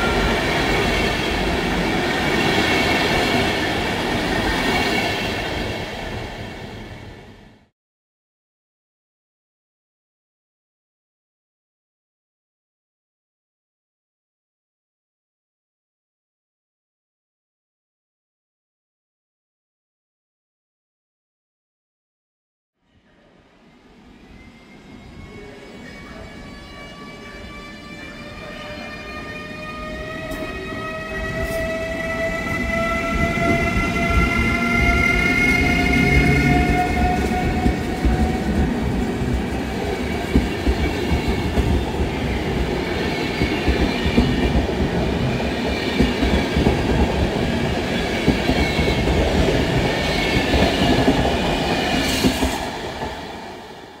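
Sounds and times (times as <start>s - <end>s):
electric locomotive whine: 0.0s - 7.7s, 23.1s - 54.0s
train wheels rumbling and clattering: 29.8s - 53.8s.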